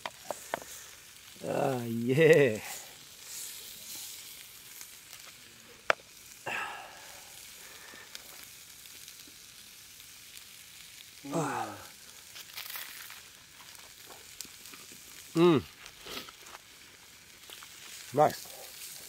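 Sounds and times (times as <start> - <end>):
food sizzling over a campfire: 0.0 - 19.0
man murmuring mm: 6.4 - 7.4, 11.2 - 12.0, 15.3 - 15.8.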